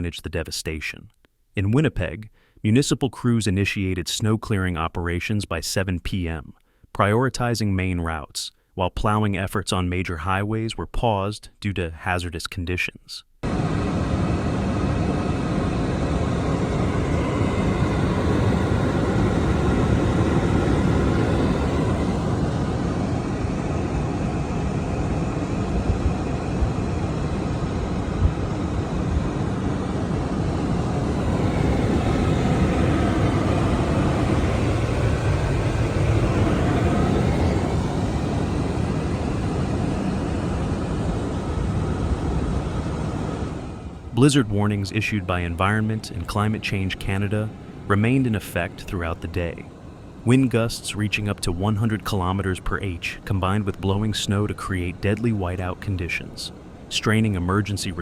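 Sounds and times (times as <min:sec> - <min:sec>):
faint engine drone: 0:13.4 - 0:58.0.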